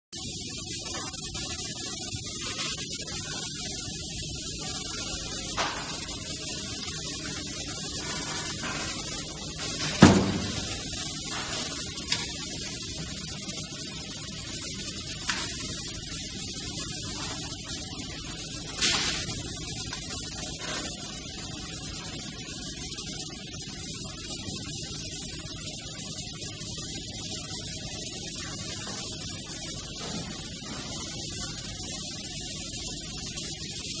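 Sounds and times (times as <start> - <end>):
welding machine hissing: 0.2 - 34.0.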